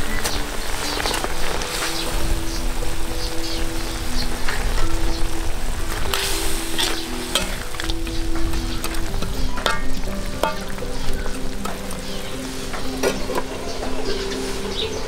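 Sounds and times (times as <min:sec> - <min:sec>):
food sizzling in a pot: 0:00.0 - 0:14.9
utensil clinking against pot: 0:06.1 - 0:12.0.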